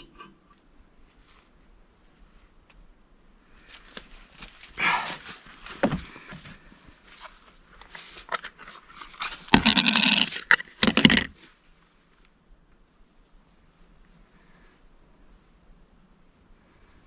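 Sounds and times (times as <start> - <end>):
rough animal calls: 4.8 - 5.2, 9.4 - 11.1.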